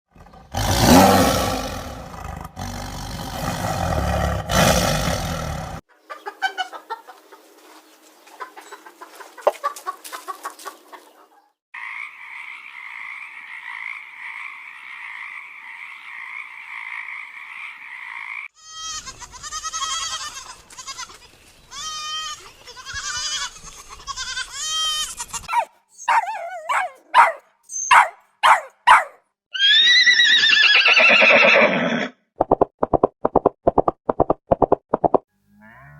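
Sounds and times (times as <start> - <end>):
loud animal call: 25.5 - 32.1
sharp high chirps: 27.7 - 28.2.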